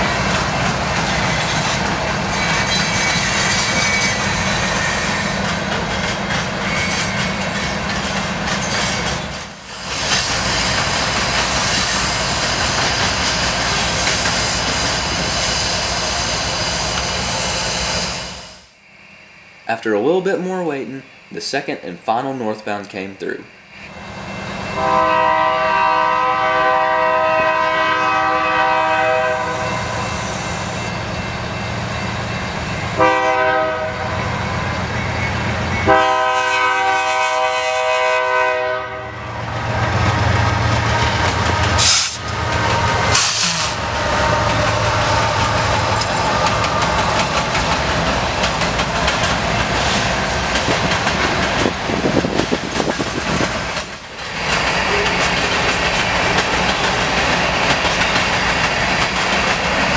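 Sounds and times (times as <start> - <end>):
locomotive horn blasts: 24.8 - 30.0, 33.0 - 34.2, 35.8 - 39.2
loud bursts of noise: 35.8 - 59.9
locomotives rumbling past: 38.4 - 59.9.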